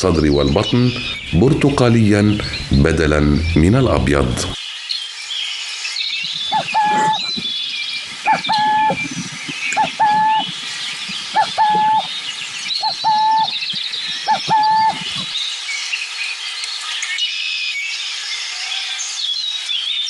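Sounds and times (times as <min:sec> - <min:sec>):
small birds chirping: 0:00.0 - 0:20.0
owl calling: 0:06.2 - 0:15.5.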